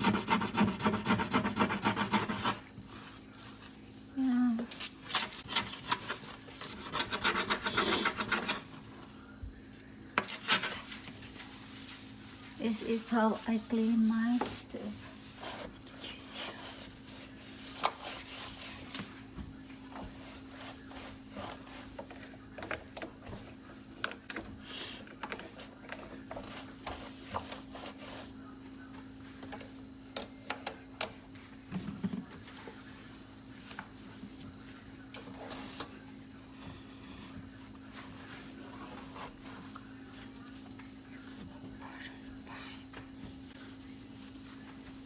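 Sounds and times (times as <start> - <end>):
rubbing and scraping glass cooktop: 0.0 - 3.6, 5.0 - 8.9, 10.2 - 18.9, 20.0 - 22.3.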